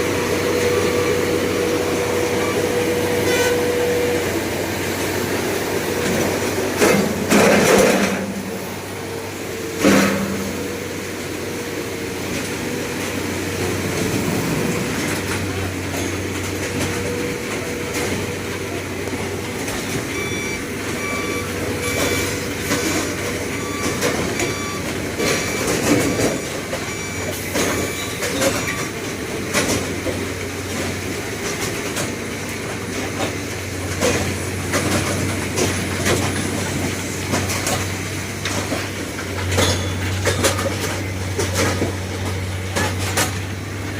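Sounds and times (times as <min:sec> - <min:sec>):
short high beeps: 0:20.1 - 0:28.9.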